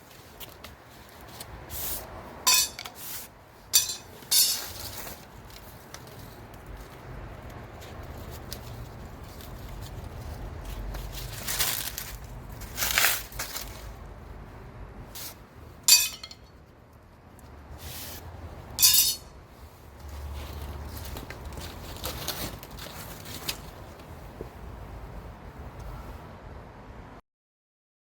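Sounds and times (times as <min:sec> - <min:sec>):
metal pipes clinking and rattling: 0:02.5 - 0:03.0, 0:03.7 - 0:05.2, 0:15.9 - 0:16.6, 0:18.8 - 0:19.3.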